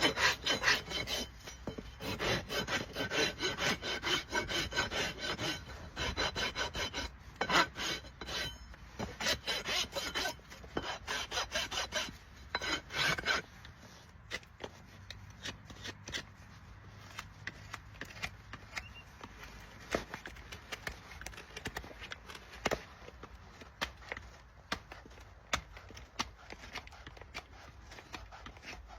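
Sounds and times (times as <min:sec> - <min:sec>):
rasp filing a hoof: 0:00.0 - 0:28.9.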